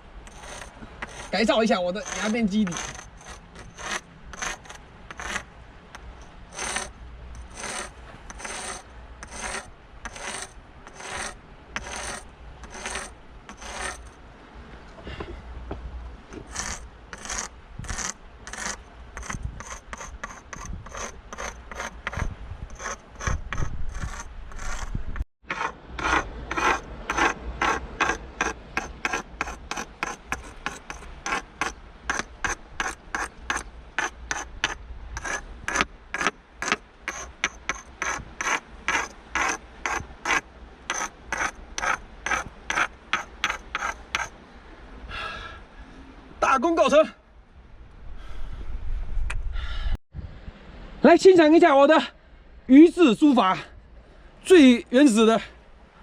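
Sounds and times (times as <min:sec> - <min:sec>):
hard object scraping rock: 0:00.3 - 0:14.2, 0:16.4 - 0:44.4.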